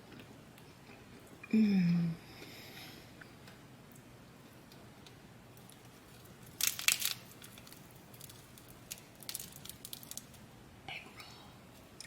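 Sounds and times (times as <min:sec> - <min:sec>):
food packaging crinkling: 0:05.6 - 0:10.4.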